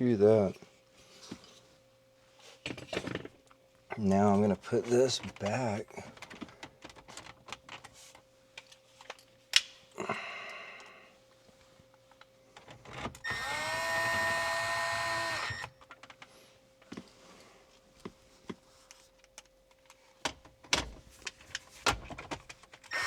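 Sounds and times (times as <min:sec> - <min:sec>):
small electric motor whirring: 0:13.2 - 0:15.7.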